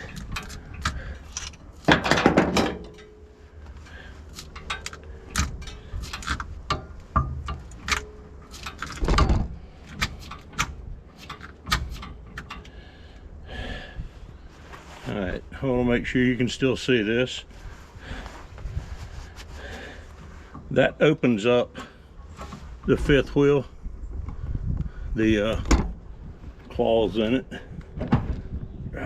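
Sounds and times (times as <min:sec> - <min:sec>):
metal hitch hardware clicking: 0:00.0 - 0:12.9.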